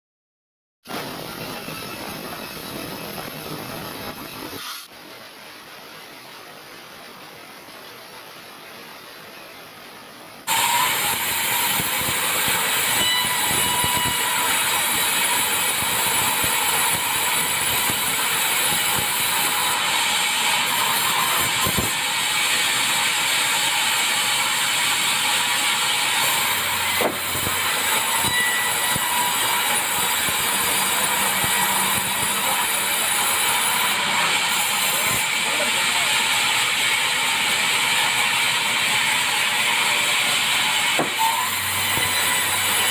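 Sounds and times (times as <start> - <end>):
saw cutting through log: 10.5 - 42.9.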